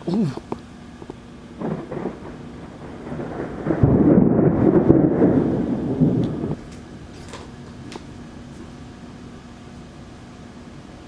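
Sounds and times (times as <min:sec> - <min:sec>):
rain: 0:01.3 - 0:09.2
crackling thunder rumble: 0:01.6 - 0:08.3.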